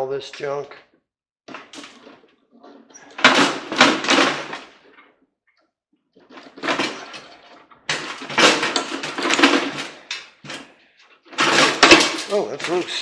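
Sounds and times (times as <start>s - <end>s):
metal parts scraping and rattling: 6.2s - 13.0s.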